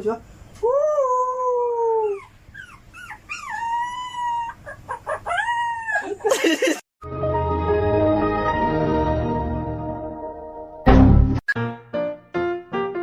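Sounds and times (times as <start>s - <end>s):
dog yelping: 1.0s - 6.4s
dog howling: 3.0s - 6.2s
music: 7.0s - 13.0s.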